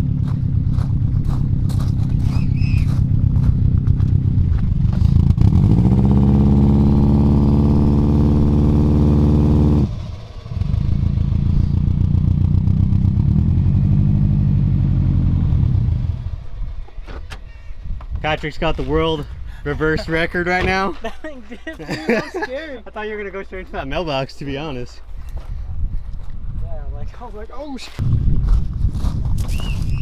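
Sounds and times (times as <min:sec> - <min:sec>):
car engine revving high: 0:04.9 - 0:16.4.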